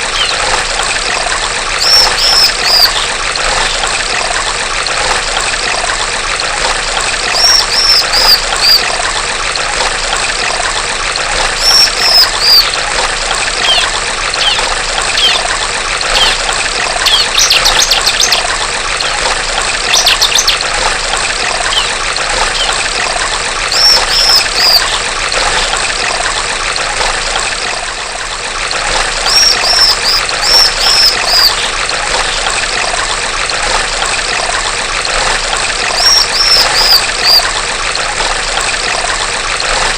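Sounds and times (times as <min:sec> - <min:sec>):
trickling stream water: 0:00.0 - 0:39.9
bird chirping and trilling: 0:00.1 - 0:00.5, 0:01.8 - 0:03.8, 0:07.3 - 0:08.9, 0:11.6 - 0:12.8, 0:13.6 - 0:15.5, 0:16.1 - 0:19.2, 0:19.9 - 0:20.7, 0:21.6 - 0:22.8, 0:23.7 - 0:25.0, 0:29.2 - 0:32.4, 0:35.9 - 0:37.5.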